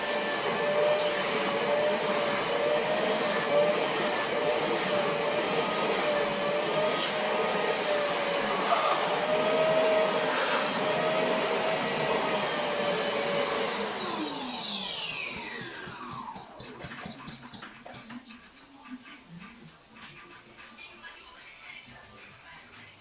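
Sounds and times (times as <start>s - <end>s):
vacuum cleaner whining: 0.0s - 18.0s.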